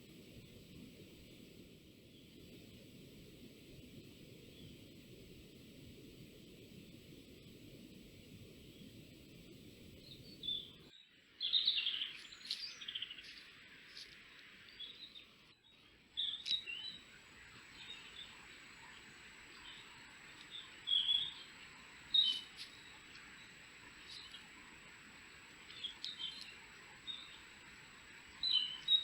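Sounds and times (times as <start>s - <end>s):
steady background hiss: 0.0s - 29.0s
small birds chirping: 8.6s - 29.0s.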